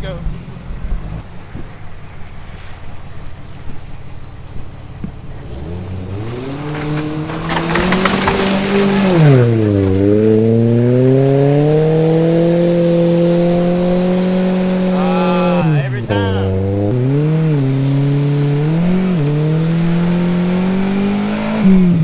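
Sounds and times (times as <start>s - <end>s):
car engine revving rough crackle: 0.5s - 15.0s, 15.9s - 22.0s.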